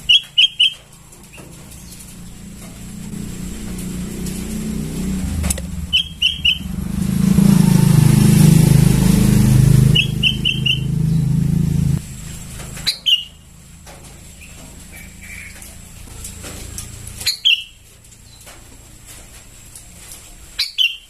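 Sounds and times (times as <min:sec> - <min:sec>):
bird chirping: 0:00.0 - 0:02.6, 0:05.0 - 0:11.9, 0:17.2 - 0:18.4
vehicle engine running: 0:00.0 - 0:19.7.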